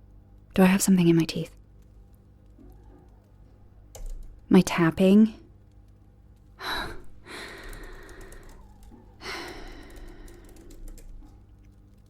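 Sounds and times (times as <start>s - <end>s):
woman sighing: 6.6s - 8.6s.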